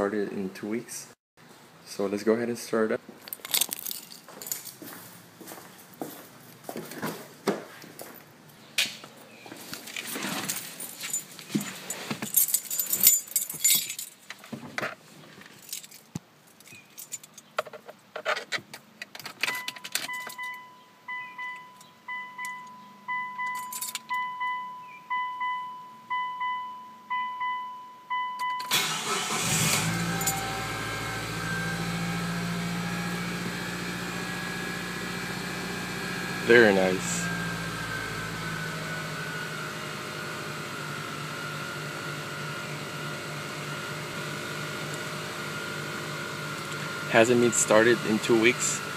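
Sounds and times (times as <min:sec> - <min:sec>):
keys jangling: 0:03.3 - 0:04.8, 0:10.5 - 0:14.3, 0:15.6 - 0:17.5, 0:23.4 - 0:24.2
dashboard warning chime beeping: 0:19.5 - 0:28.9
car engine cranking and starting: 0:28.6 - 0:48.9
car engine idling: 0:28.8 - 0:48.9.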